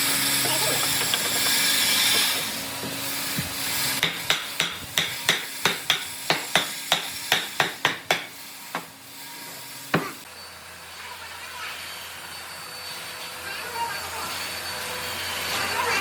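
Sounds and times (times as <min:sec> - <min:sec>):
hammering on wood: 0:04.0 - 0:08.9, 0:09.9 - 0:10.2.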